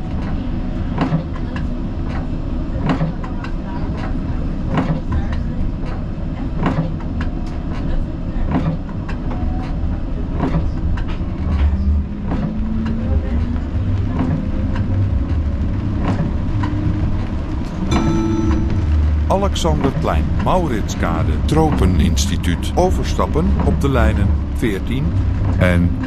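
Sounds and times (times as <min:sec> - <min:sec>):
tram rumbling along track: 0:00.0 - 0:26.0
low motor hum: 0:11.4 - 0:26.0.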